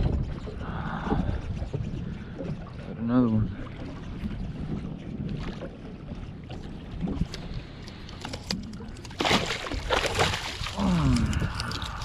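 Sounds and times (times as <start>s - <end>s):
wind rumbling on microphone: 0.0s - 12.0s
fish splashing at surface: 9.1s - 12.0s.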